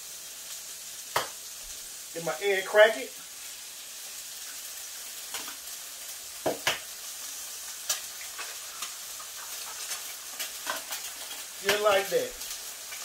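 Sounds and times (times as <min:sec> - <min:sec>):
food sizzling on a griddle: 0:00.0 - 0:13.0
eggs cracking taps: 0:01.1 - 0:01.4, 0:06.4 - 0:06.9.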